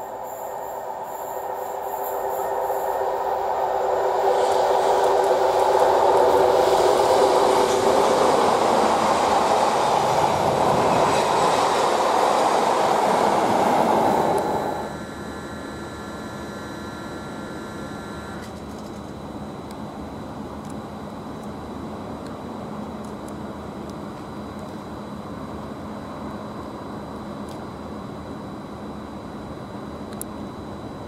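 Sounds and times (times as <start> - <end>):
train passing on rails: 0.0 - 16.3
steady tone: 12.8 - 18.4.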